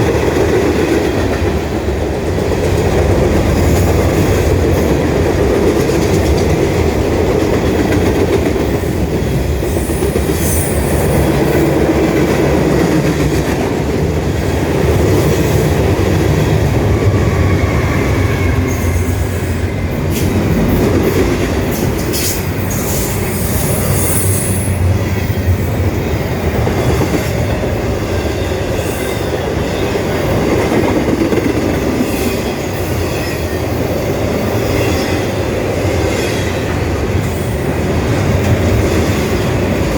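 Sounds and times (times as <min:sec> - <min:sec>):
freight train rumbling past: 0:00.0 - 0:39.9
wheels clacking over rail joints: 0:02.4 - 0:09.2.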